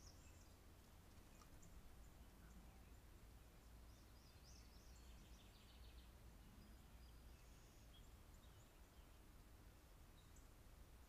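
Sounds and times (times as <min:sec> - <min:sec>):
faint bird chirps and trills: 0:00.0 - 0:11.0
low steady hum: 0:00.0 - 0:11.0.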